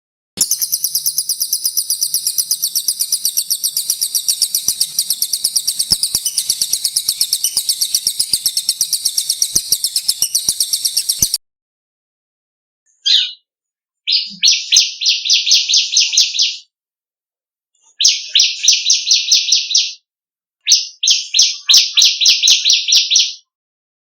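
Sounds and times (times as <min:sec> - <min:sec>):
songbird rapid rolling song: 0:00.4 - 0:11.4.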